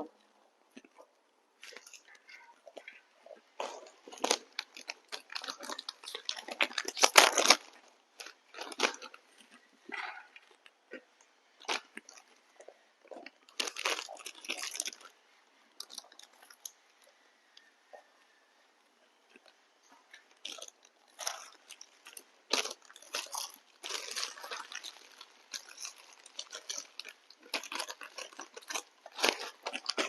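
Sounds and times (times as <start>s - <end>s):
dogs crunching treats: 1.6s - 11.0s, 11.6s - 15.2s, 15.8s - 17.1s, 19.3s - 30.0s.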